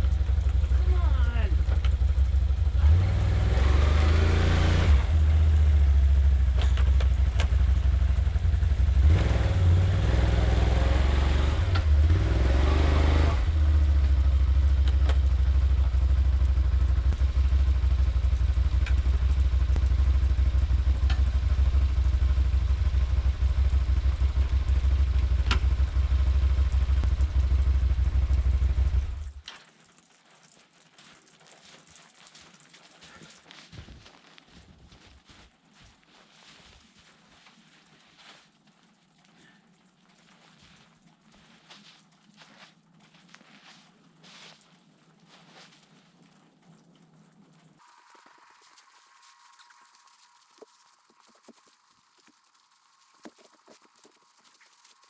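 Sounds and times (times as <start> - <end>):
vehicle engine running: 0.0 - 29.4, 47.8 - 55.0.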